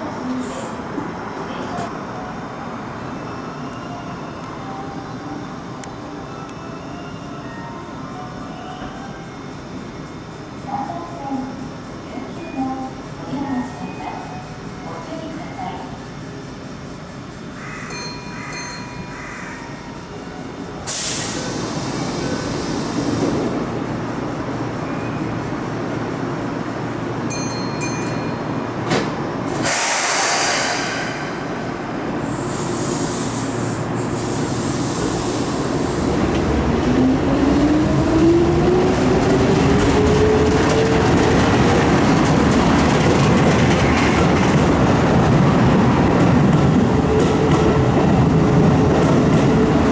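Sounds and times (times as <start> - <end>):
train running noise: 0.0 - 49.9
air hiss bursts: 20.9 - 23.6, 29.5 - 36.2.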